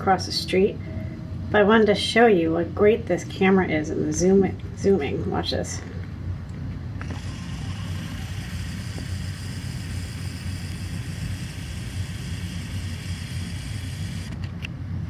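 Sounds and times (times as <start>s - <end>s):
steady hiss: 7.0s - 14.3s.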